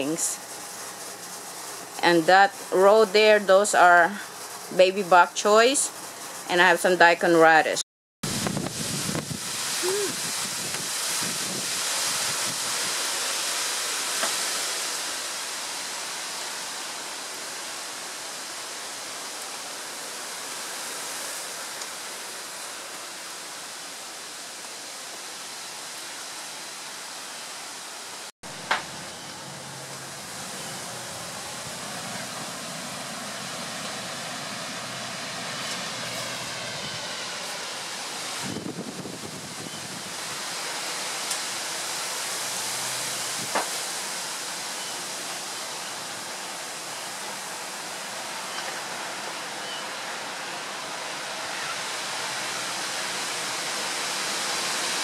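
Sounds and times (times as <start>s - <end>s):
heavy rain pouring: 8.2s - 55.0s.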